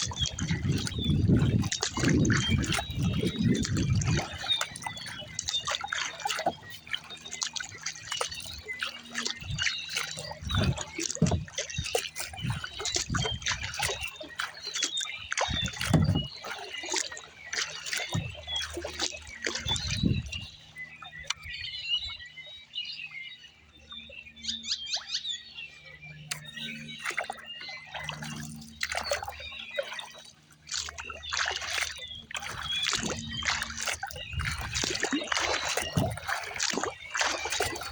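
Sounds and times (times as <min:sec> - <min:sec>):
water splashing and dripping: 0:00.0 - 0:21.7, 0:26.2 - 0:37.9
paddle dipping through water: 0:00.0 - 0:37.9
dull low thumps: 0:15.4 - 0:16.4.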